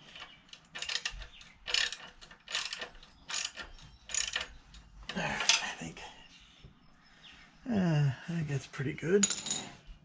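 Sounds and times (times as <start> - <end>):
ratchet wrench clicking: 0.8 - 4.5.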